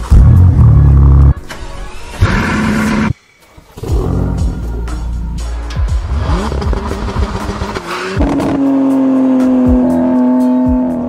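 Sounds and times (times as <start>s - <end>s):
background music: 0.0s - 11.0s
sports car engines revving: 6.0s - 11.0s.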